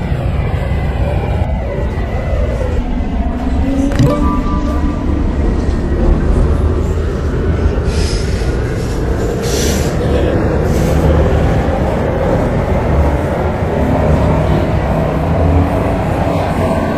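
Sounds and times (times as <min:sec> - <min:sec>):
train wheels rumbling on track: 0:05.3 - 0:16.9.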